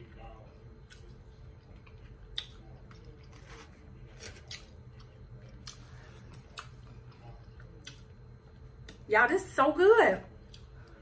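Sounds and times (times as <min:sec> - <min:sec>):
person chewing food: 0:00.2 - 0:09.0.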